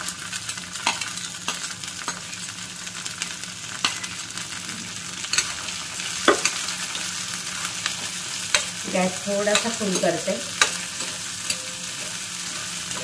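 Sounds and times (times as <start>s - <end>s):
vegetables sizzling in hot oil: 0.0s - 13.0s
steel spatula scraping and clinking: 7.8s - 13.0s.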